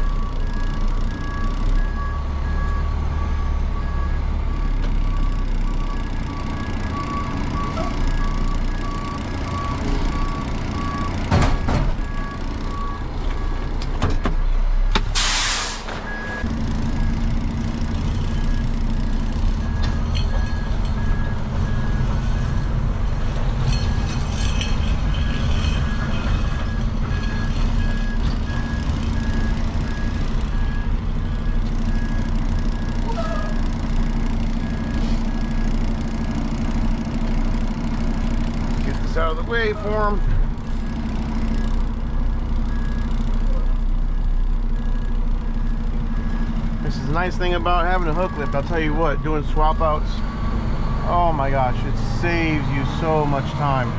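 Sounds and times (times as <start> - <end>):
truck engine running: 0.0 - 53.9
loud air hiss: 15.2 - 15.9.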